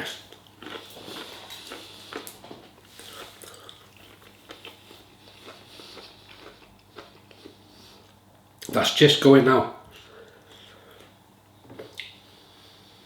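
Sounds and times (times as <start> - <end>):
person chewing food: 0.1 - 8.4.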